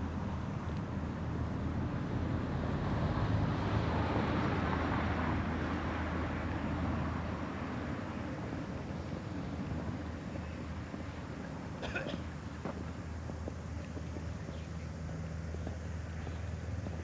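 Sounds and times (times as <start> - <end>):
vehicle passing by: 1.4 - 10.8.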